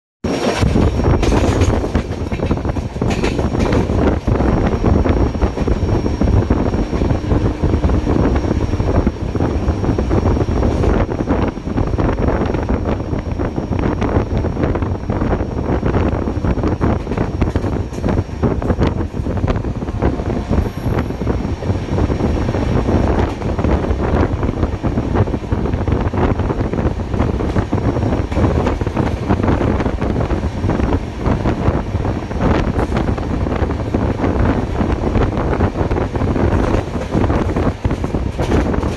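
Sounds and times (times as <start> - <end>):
train running on track: 0.2 - 38.9
wind buffeting microphone: 0.3 - 38.9.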